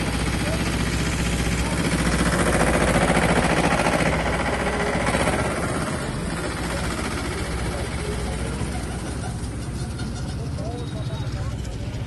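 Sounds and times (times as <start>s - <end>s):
heavy vehicle engine pulsing: 0.0s - 12.0s.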